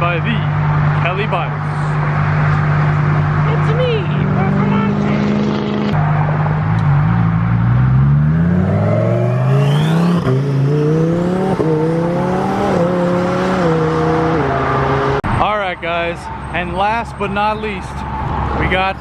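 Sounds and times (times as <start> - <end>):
sports car accelerating hard: 2.0 - 15.2
turbo whistle: 8.8 - 10.2.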